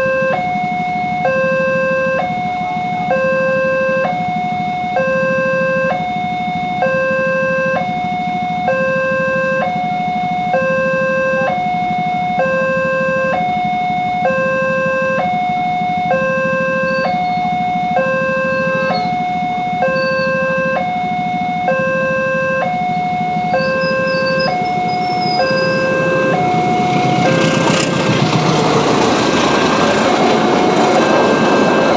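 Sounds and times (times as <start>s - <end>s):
two-tone crossing alarm: 0.0s - 31.9s
low rumble: 22.8s - 31.9s.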